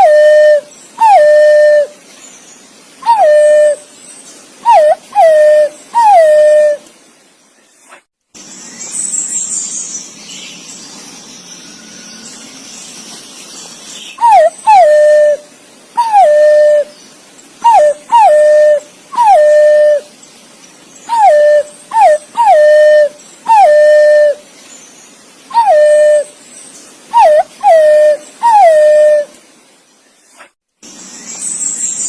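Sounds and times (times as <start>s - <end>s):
pigeon whistled call: 0.0s - 1.9s, 3.0s - 3.8s, 4.6s - 6.8s, 14.2s - 15.4s, 16.0s - 16.9s, 17.6s - 20.0s, 21.1s - 24.4s, 25.5s - 26.3s, 27.1s - 29.3s.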